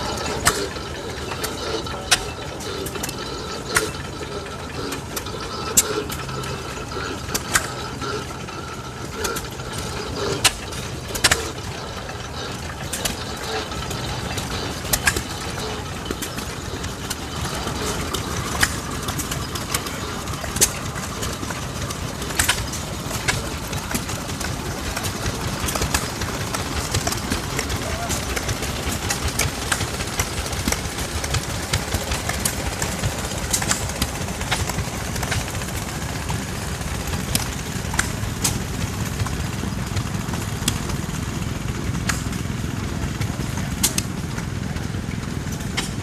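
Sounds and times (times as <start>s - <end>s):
engine mechanical clatter: 0.0s - 46.0s.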